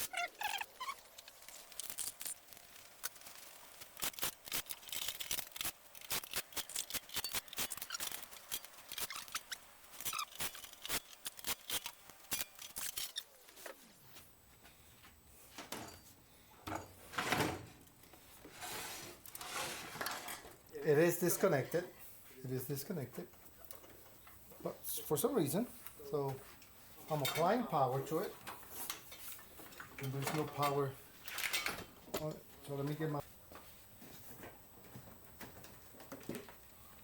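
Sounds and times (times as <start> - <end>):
small metallic clicks and scrapes: 0.0 - 13.3.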